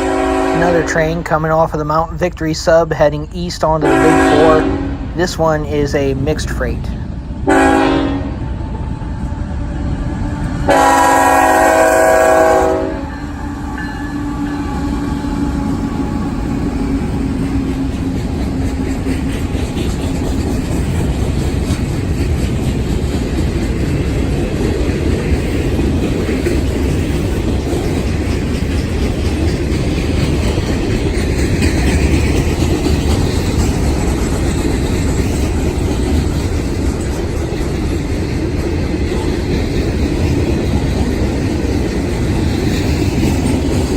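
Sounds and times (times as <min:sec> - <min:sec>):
train horn blast: 0:00.0 - 0:01.1, 0:03.8 - 0:05.2, 0:07.4 - 0:16.9
train wheels clacking on rails: 0:00.0 - 0:43.9.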